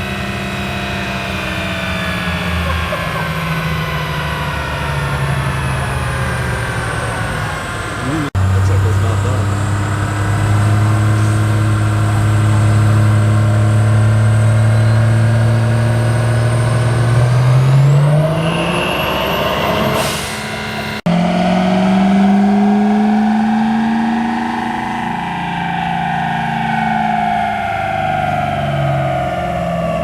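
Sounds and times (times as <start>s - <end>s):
diesel truck engine revving: 0.0s - 30.0s
high whistle: 17.9s - 21.4s.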